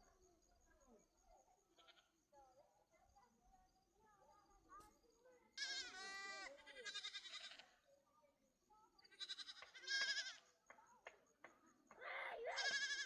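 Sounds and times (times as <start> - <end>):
animals bleating: 5.6 - 7.7, 9.1 - 10.4, 12.4 - 13.0.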